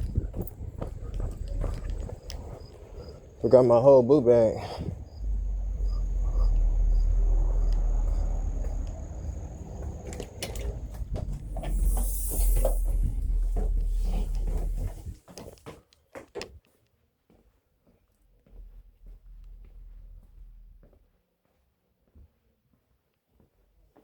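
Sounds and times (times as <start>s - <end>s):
heavy low rumble: 0.0s - 15.2s, 18.6s - 21.0s.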